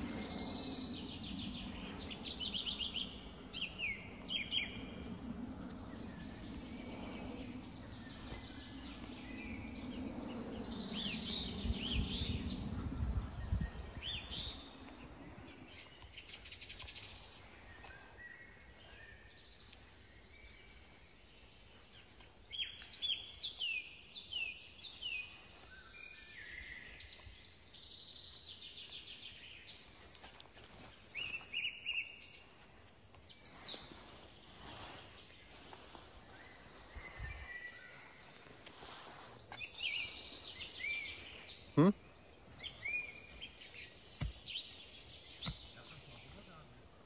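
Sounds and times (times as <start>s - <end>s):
wild birds singing: 0.0s - 47.0s.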